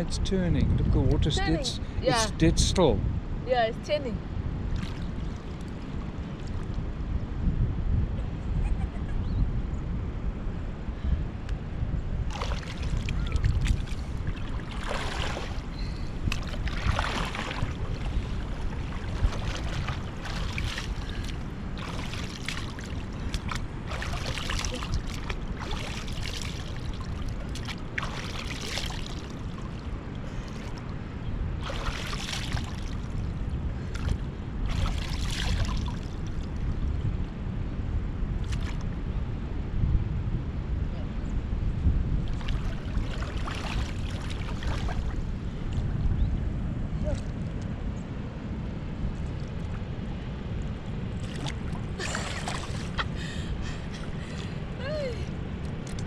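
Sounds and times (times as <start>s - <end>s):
wind rumble on microphone: 0.0s - 56.0s
water splashing and sloshing: 4.6s - 7.1s, 12.2s - 36.8s, 38.4s - 39.0s, 42.2s - 46.0s, 49.1s - 56.0s.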